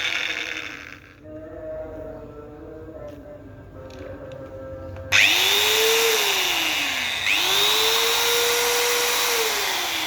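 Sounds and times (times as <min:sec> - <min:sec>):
angle grinder whining: 0:00.0 - 0:01.2, 0:05.1 - 0:10.0.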